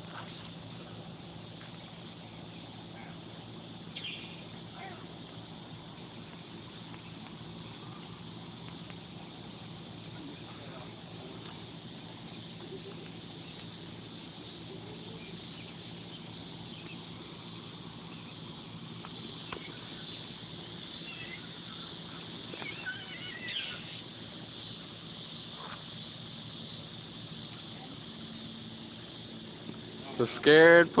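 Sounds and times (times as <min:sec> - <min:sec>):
steady low hum: 0:00.0 - 0:31.0
bird chirping: 0:03.8 - 0:05.2, 0:15.0 - 0:18.6, 0:19.2 - 0:24.7.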